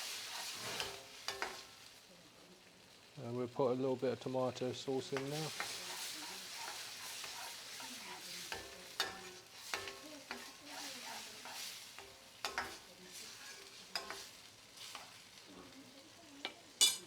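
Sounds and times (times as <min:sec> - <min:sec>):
curry sizzling in a pan: 0:00.0 - 0:17.0
spoon knocking against pan: 0:08.5 - 0:10.6, 0:12.0 - 0:12.8.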